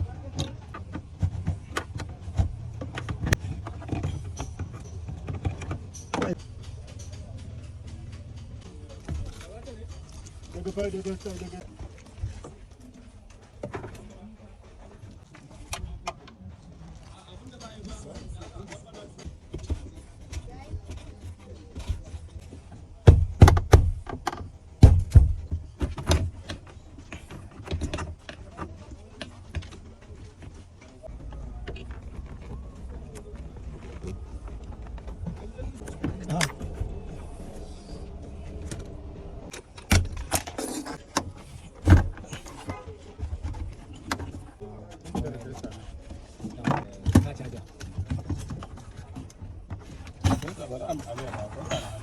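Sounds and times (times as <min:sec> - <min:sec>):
sharp clicks and knocks: 0:00.2 - 0:12.6
low steady hum: 0:31.1 - 0:40.3.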